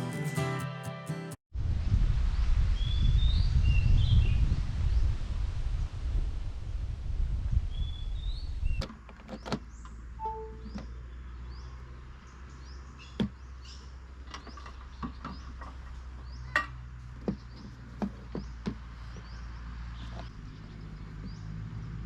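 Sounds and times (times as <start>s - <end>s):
high bird chirps: 10.2s - 11.6s.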